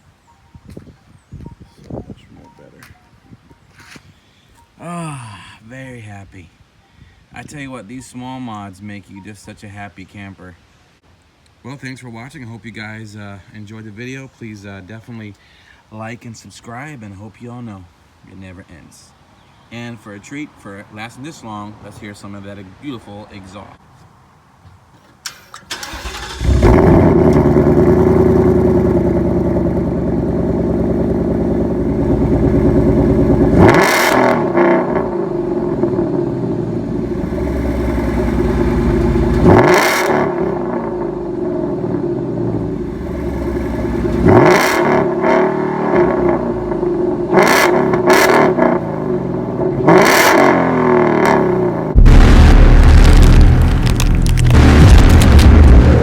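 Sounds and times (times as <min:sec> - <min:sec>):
car engine starting: 0:25.2 - 0:56.0
car engine idling: 0:25.6 - 0:33.7, 0:35.2 - 0:39.6, 0:40.9 - 0:44.4, 0:51.3 - 0:56.0
engine revving: 0:25.7 - 0:56.0.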